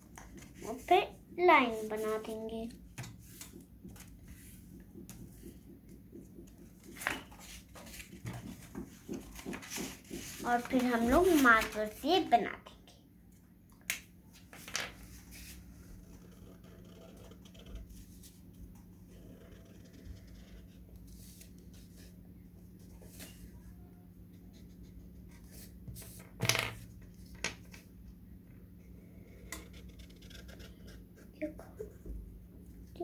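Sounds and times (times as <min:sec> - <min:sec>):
faint steady hum: 0:00.0 - 0:33.0
paper handling: 0:06.8 - 0:12.0
marker drawing on paper: 0:24.3 - 0:26.2.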